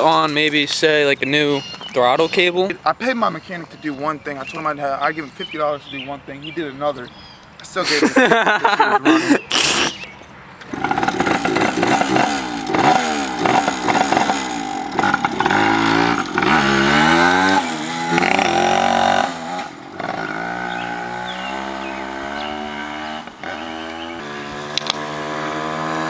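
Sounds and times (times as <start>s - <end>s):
pit bike engine revving: 10.6s - 26.0s.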